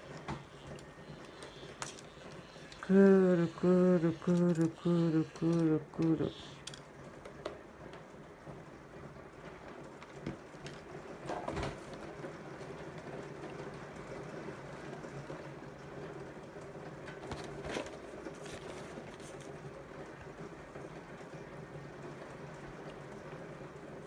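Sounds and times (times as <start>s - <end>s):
hand crank dynamo whirring: 0.0s - 6.8s.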